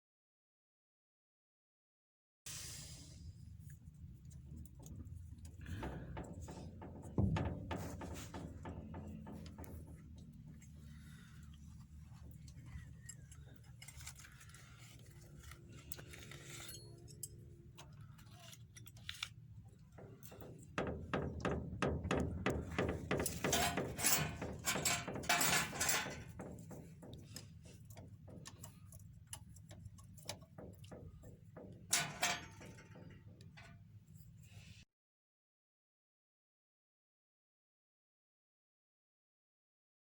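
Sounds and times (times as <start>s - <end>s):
metallic clicking and clinking: 4.7s - 33.8s.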